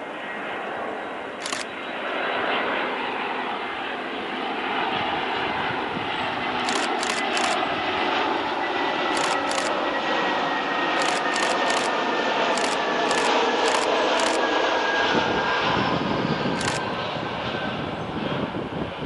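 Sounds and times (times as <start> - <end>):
jet engine roar: 0.0 - 19.0
sharp high clicks: 1.4 - 1.7, 6.6 - 7.6, 9.1 - 9.8, 11.0 - 14.4, 16.6 - 16.8
wind rumble on microphone: 4.8 - 6.6, 14.9 - 19.0.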